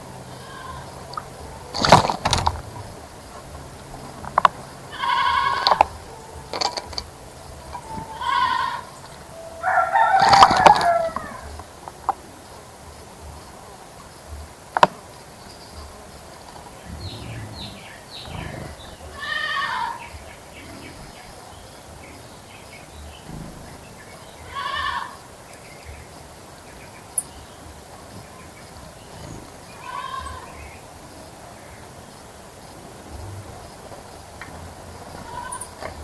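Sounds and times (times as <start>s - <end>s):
animal calling: 0.0s - 11.6s, 16.6s - 21.4s, 24.4s - 25.3s, 29.2s - 30.8s, 34.8s - 36.0s.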